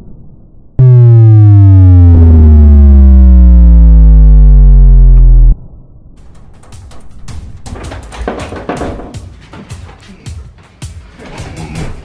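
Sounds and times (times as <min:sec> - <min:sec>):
buzzy electronic tone sliding down: 0:00.8 - 0:05.6.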